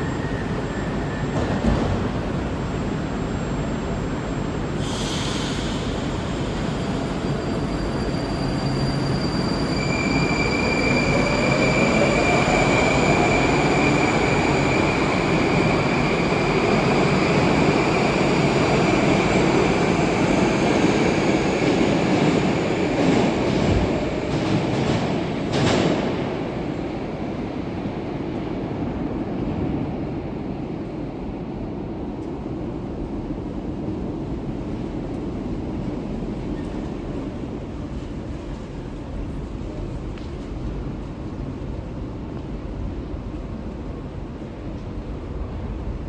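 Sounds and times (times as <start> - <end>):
high wheel squeal: 6.6 - 15.3.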